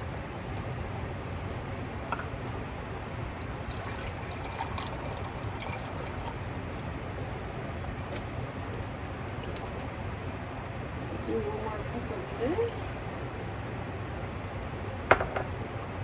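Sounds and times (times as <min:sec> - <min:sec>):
soup heating in a pot: 0:00.0 - 0:10.0.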